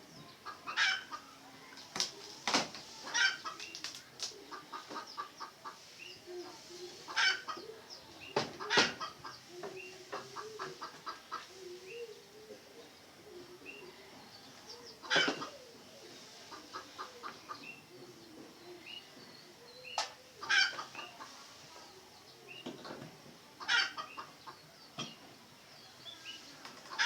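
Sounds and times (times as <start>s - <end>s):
junglefowl clucking: 0.4s - 1.3s, 3.0s - 12.6s, 15.0s - 17.8s, 20.0s - 21.4s, 23.6s - 24.6s.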